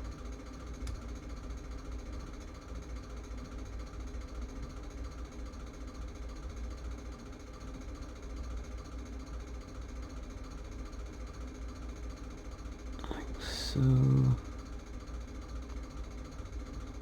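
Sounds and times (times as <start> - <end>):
low buzzing hum: 13.0 - 14.8.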